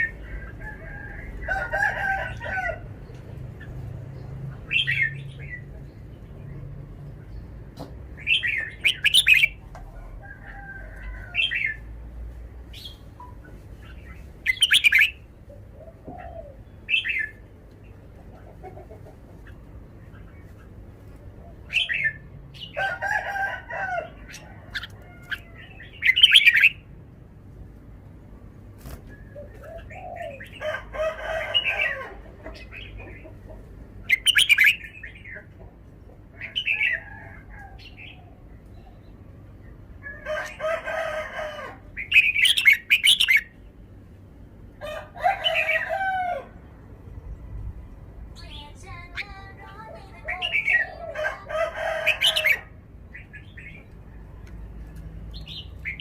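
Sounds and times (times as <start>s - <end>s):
bulbul singing bright phrases: 8.2s - 9.6s, 48.2s - 51.2s.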